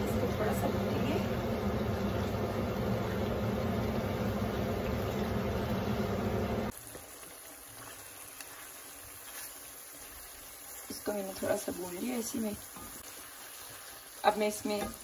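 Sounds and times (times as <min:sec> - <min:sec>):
food frying in a pan: 0:00.0 - 0:15.0
quiet simmer with small clicks: 0:06.7 - 0:15.0.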